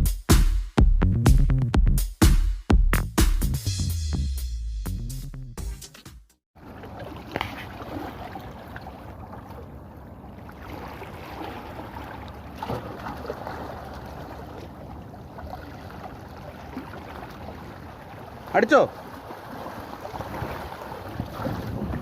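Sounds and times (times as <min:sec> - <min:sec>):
boat rushing through water: 0:06.6 - 0:22.0
wind: 0:06.6 - 0:22.0.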